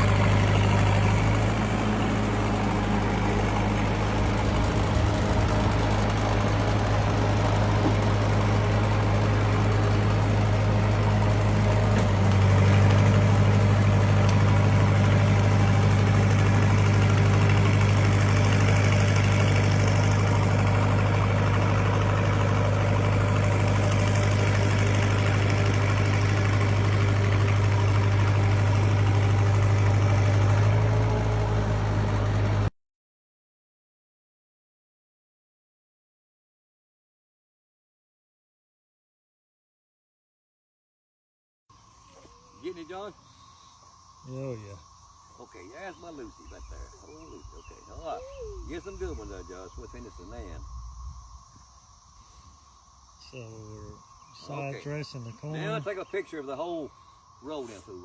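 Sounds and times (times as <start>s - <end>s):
welder engine running: 0.0s - 32.7s.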